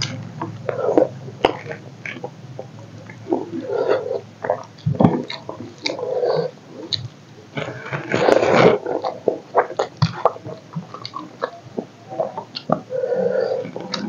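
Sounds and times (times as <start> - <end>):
wet chewing and lip smacking: 0.0 - 6.1, 6.8 - 12.9
sharp mouth clicks: 9.0 - 12.9.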